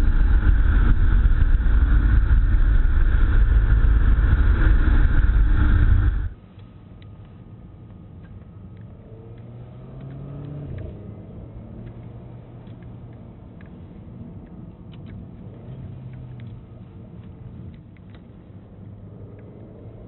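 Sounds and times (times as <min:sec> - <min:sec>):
car engine while driving: 0:00.0 - 0:20.0
road and tyre noise: 0:00.0 - 0:20.0
faint ticks: 0:11.8 - 0:19.7.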